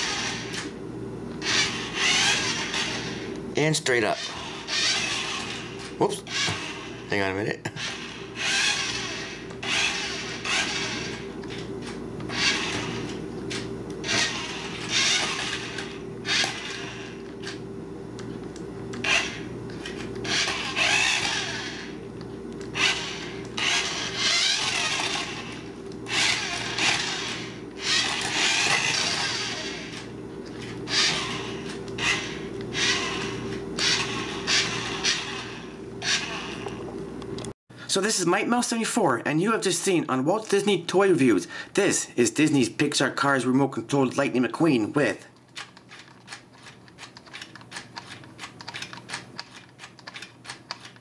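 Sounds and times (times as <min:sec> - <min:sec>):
toy car motor whirring: 0:00.0 - 0:00.7, 0:01.4 - 0:03.3, 0:04.2 - 0:07.0, 0:07.8 - 0:11.2, 0:12.3 - 0:17.6, 0:19.0 - 0:21.9, 0:22.7 - 0:36.8, 0:45.6 - 0:51.0.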